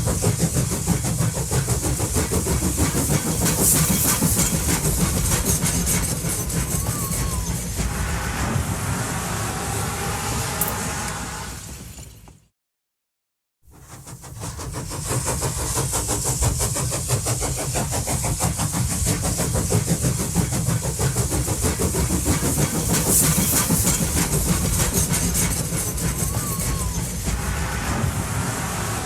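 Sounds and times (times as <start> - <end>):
train running with even pulsing: 0.0 - 12.4, 13.7 - 29.0.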